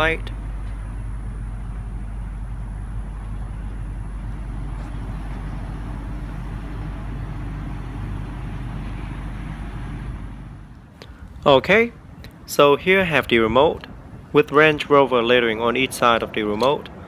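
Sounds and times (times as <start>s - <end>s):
vehicle engine idling: 0.0s - 12.5s
faint high whine: 0.0s - 15.8s.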